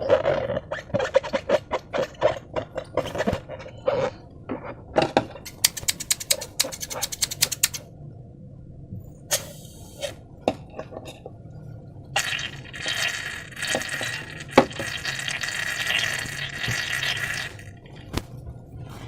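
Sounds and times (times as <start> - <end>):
sharp clicks and taps: 5.5 - 7.8
liquid pouring into a container: 12.2 - 17.8.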